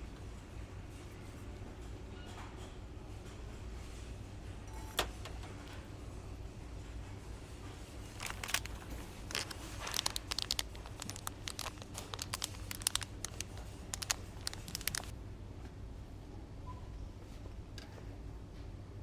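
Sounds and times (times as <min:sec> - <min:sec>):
crinkling and crackling: 0:08.0 - 0:15.1.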